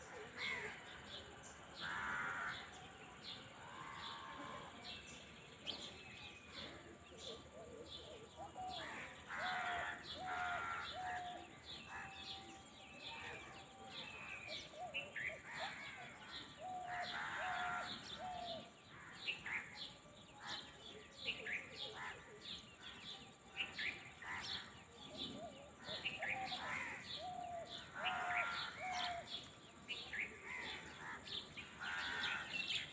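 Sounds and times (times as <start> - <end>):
birds chirping: 0.0 - 32.9
harsh bird calls: 23.6 - 32.9.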